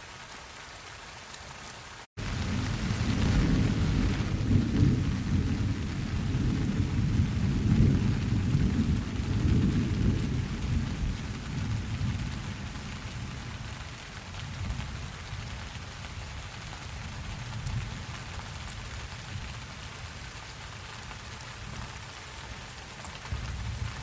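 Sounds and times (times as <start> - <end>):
steady rain: 0.0 - 24.0
thunder rumbling: 2.2 - 13.8.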